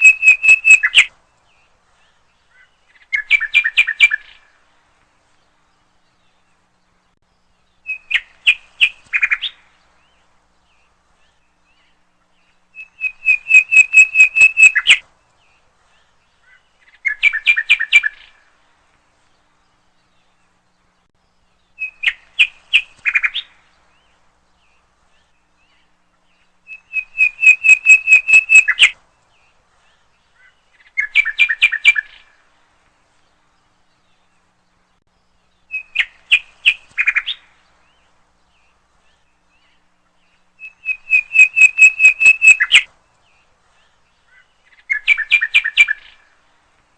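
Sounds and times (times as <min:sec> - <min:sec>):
songbird chirping: 0:00.0 - 0:46.9.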